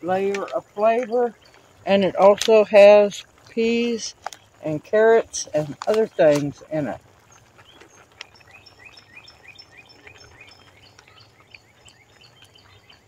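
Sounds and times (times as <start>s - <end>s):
bird singing rising chirps: 7.3s - 13.0s.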